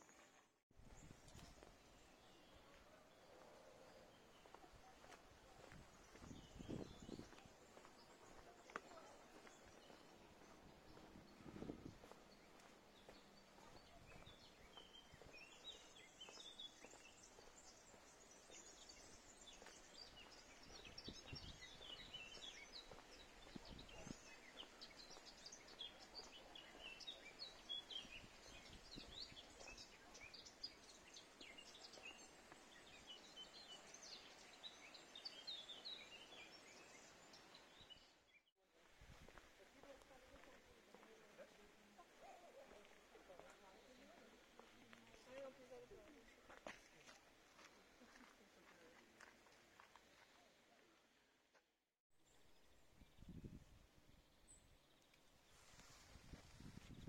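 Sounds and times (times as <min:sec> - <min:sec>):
songbirds chirping and trilling: 0:00.0 - 0:38.4, 0:39.1 - 0:50.5.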